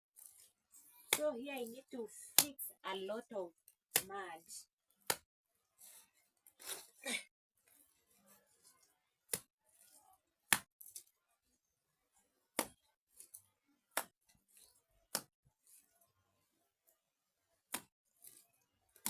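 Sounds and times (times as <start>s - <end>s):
faint handling sounds: 0.2s - 1.8s, 7.6s - 12.3s.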